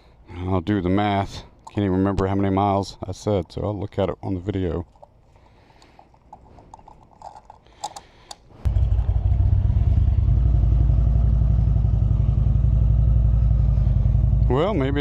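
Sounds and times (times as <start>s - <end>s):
motorcycle engine starting and idling: 8.6s - 15.0s.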